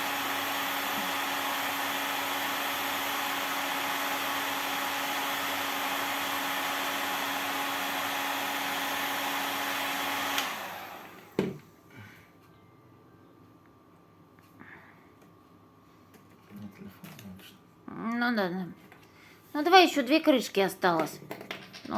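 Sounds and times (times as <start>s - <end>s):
fan winding down: 0.0s - 11.3s
hot-air blower humming: 0.0s - 12.2s.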